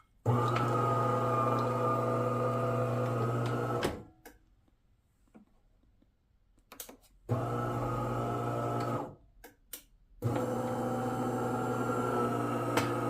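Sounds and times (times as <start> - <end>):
espresso machine pump buzzing: 0.3 - 3.8, 10.2 - 13.0.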